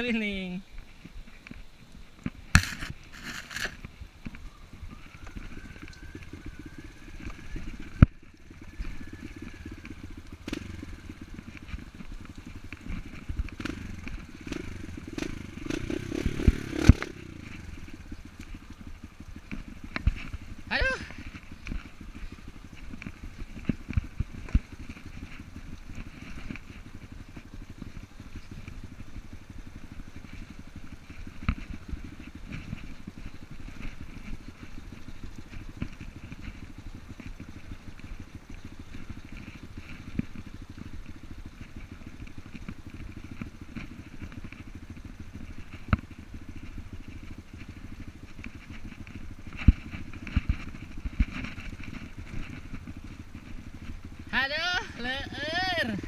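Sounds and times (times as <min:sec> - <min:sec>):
dirt bike engine at low revs: 0:00.0 - 0:56.0.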